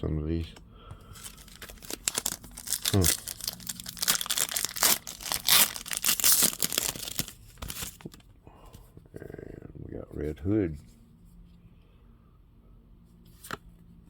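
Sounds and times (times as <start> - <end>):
card pack wrapper tearing and crinkling: 1.2 - 8.2.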